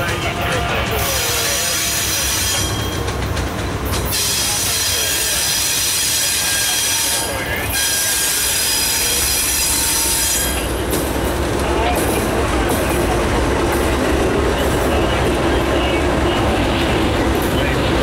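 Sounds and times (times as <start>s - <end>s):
locomotive engine rumble: 0.0s - 18.0s
train wheels squealing: 0.9s - 3.1s, 3.9s - 10.8s.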